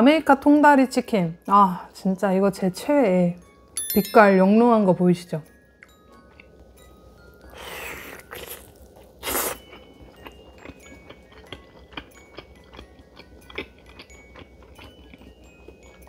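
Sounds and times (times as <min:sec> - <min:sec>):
wet chewing clicks: 0:09.2 - 0:15.3.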